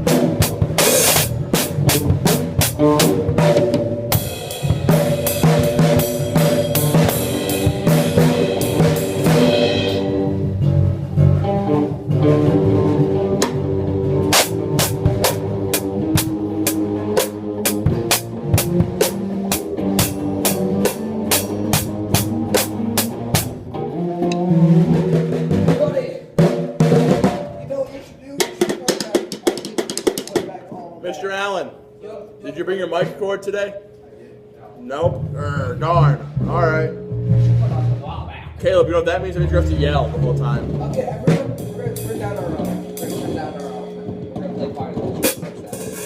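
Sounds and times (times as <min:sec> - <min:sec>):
drum kit with crashing cymbals: 0:00.0 - 0:10.4, 0:12.2 - 0:23.6, 0:24.4 - 0:27.6, 0:40.6 - 0:46.0
amplified guitar: 0:00.0 - 0:25.8, 0:31.8 - 0:46.0.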